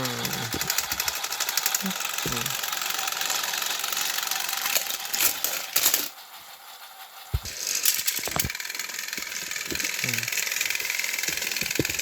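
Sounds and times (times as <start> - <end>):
plastic gears rattling: 0.0 - 12.0
toy train motors whirring: 0.0 - 12.0.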